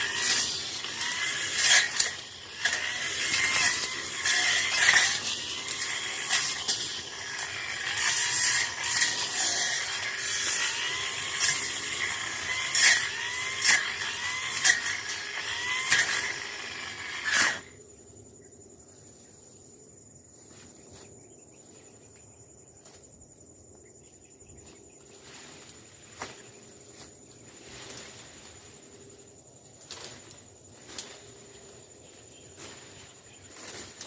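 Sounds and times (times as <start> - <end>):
brush cutter cutting brush: 0.0 - 17.7, 32.5 - 34.0
faint high insect whine: 0.0 - 34.0.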